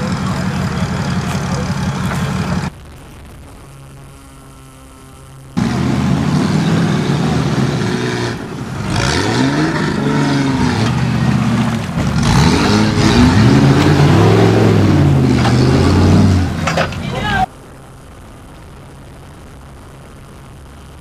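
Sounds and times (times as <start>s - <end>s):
engine revving hard: 5.6s - 17.5s.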